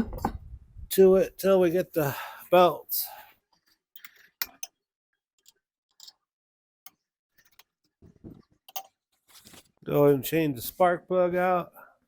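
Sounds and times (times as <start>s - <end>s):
hand tools clicking and tapping: 4.0s - 4.8s.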